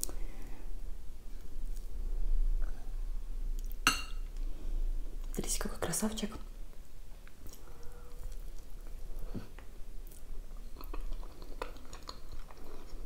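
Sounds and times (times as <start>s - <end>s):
person chewing food: 7.2s - 13.0s.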